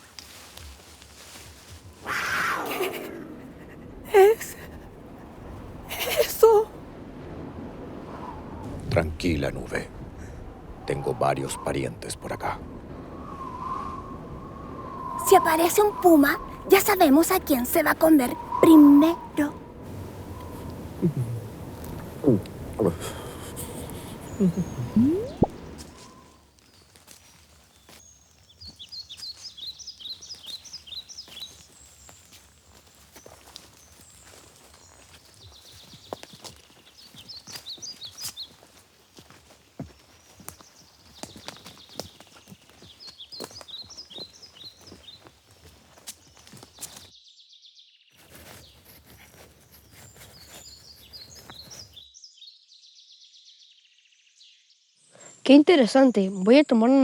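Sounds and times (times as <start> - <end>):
faint forest ambience: 0.0 - 57.0
songbird chirping: 8.0 - 57.0
dense crackling noise: 19.0 - 26.3.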